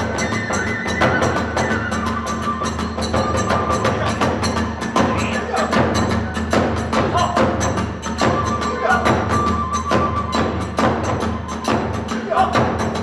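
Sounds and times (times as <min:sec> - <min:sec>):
bamboo flute high notes: 0:00.0 - 0:13.0
drums in fast rhythm: 0:00.0 - 0:13.0
hand cymbals: 0:00.0 - 0:13.0.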